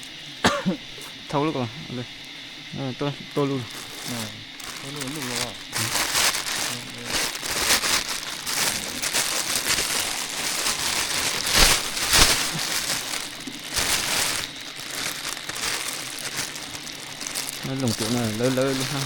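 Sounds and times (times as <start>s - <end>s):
crinkling handling noise: 0.0s - 1.3s, 3.4s - 19.0s
sharp cracks: 3.8s - 19.0s.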